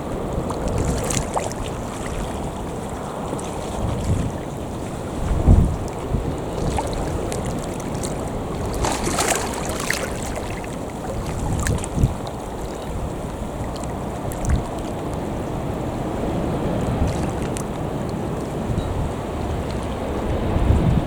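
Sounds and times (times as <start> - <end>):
waves washing on shore: 0.0 - 21.0
wind buffeting microphone: 0.0 - 21.0.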